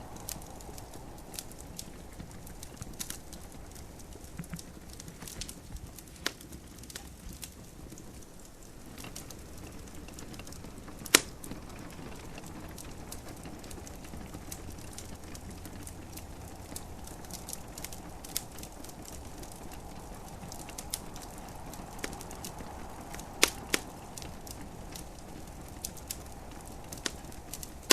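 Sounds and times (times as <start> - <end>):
soft steady hiss: 0.0 - 27.9
wood fire crackling: 0.0 - 27.9.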